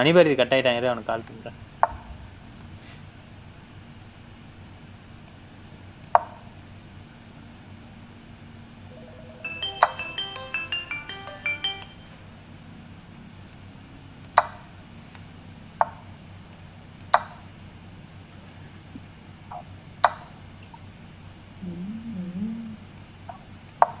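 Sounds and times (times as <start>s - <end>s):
faint low hum: 0.0s - 23.7s.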